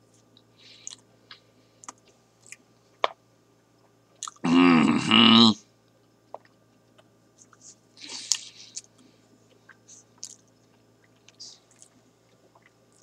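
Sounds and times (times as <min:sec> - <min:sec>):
crunchy chewing: 0:06.4 - 0:13.0.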